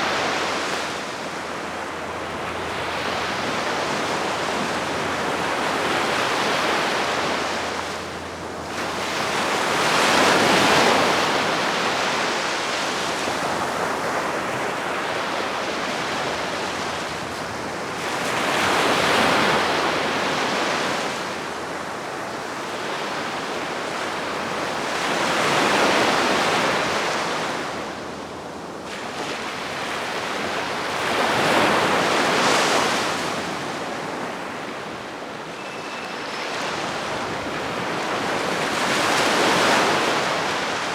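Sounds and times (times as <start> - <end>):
sea waves breaking on shore: 0.0 - 40.9.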